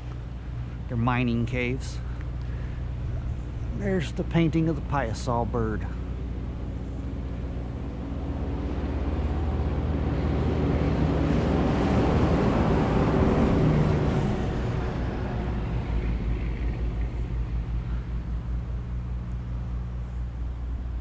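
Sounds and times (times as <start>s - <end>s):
steady low rumble: 0.0s - 21.0s
vehicle passing by: 8.0s - 19.2s.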